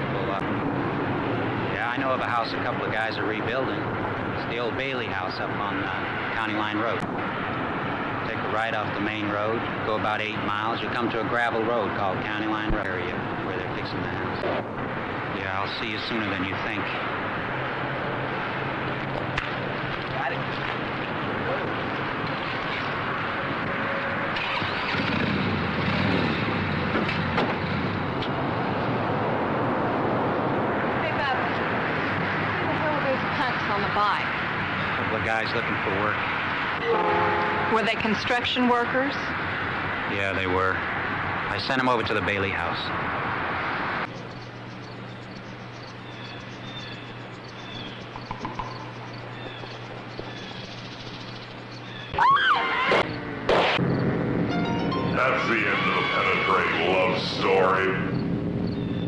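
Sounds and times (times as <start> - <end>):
birds chirping: 0.0 - 28.9, 31.0 - 53.2, 53.8 - 59.0
motorcycle engine riding off: 20.6 - 28.4.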